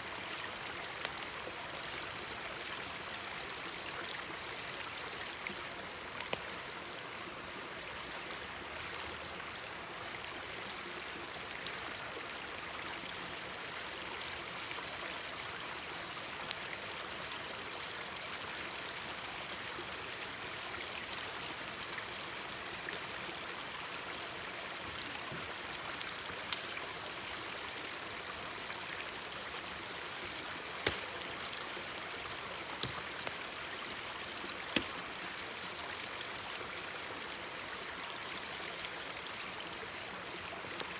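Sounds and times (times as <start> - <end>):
campfire crackling pops: 6.2 - 6.5, 25.8 - 26.9, 30.2 - 31.7, 32.6 - 33.5, 34.6 - 35.2
stream babbling: 8.4 - 40.9.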